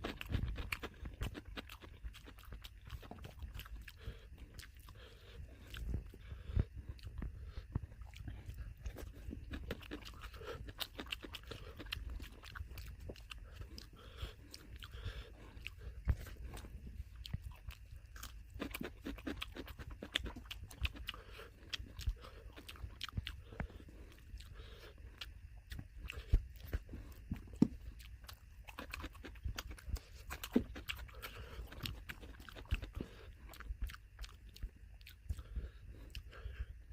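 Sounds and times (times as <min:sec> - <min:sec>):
crunching of raw salad: 0:00.0 - 0:36.5
wet smacking chewing: 0:00.0 - 0:36.7.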